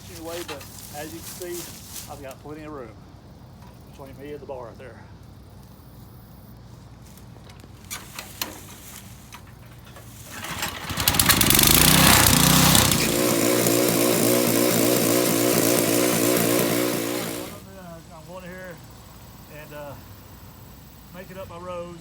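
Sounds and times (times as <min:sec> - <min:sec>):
tiller engine running: 0:07.8 - 0:17.8.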